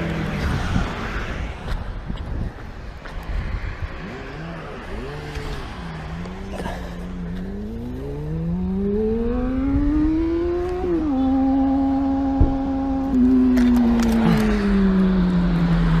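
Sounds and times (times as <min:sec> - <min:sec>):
motorcycle engine accelerating: 0:03.9 - 0:16.0.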